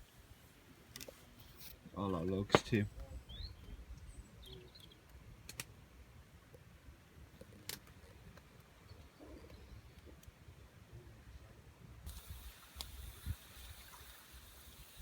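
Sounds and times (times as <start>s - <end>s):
faint bird chirps: 3.0s - 5.0s.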